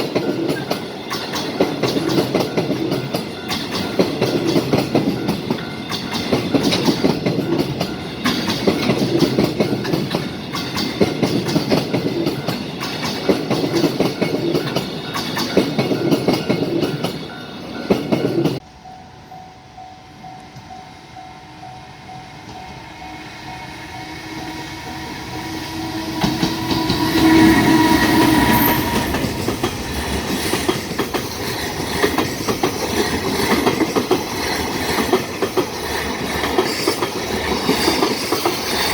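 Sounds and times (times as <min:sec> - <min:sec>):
train wheel clatter: 0:00.0 - 0:18.6, 0:25.4 - 0:38.9
train rushing past: 0:00.0 - 0:38.9
train horn blast: 0:22.7 - 0:29.7.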